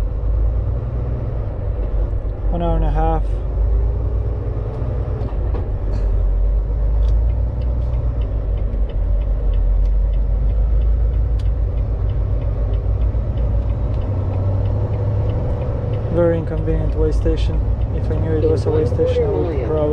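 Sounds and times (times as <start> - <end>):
truck engine and tyres rumbling: 0.0 - 19.9
faint regular ticking: 6.5 - 18.3.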